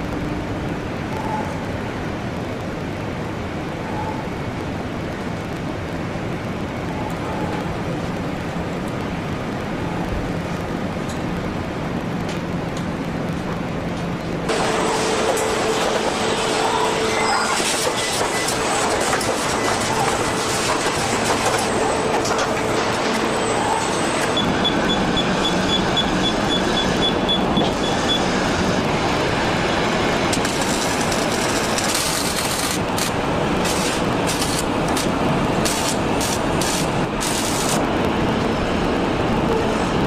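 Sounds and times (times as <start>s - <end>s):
clattering machinery: 14.0s - 38.1s
rapid high beeping: 23.2s - 28.3s.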